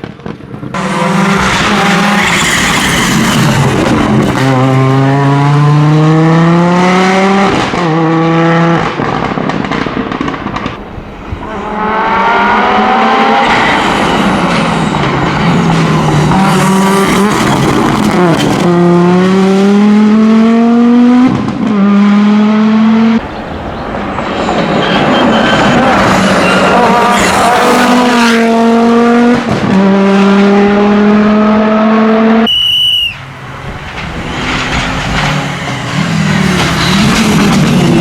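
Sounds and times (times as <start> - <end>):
rally car engine accelerating: 0.7 - 9.4, 11.4 - 23.2, 25.5 - 32.5.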